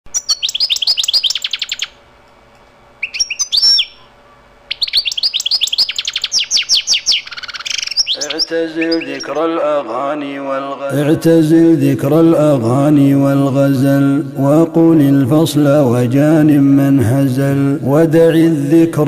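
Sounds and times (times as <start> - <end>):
songbird trilling: 0.1 - 2.0, 3.0 - 9.6
person chanting a melody: 8.2 - 19.0.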